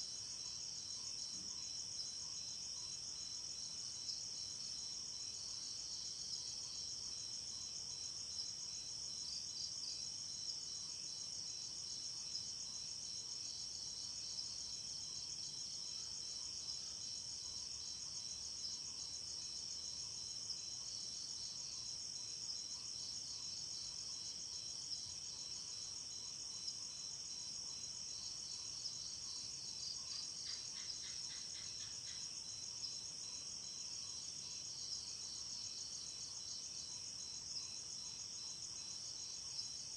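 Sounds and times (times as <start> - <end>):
low pulsed insect call: 0.0 - 39.9
crickets trilling: 12.8 - 39.9.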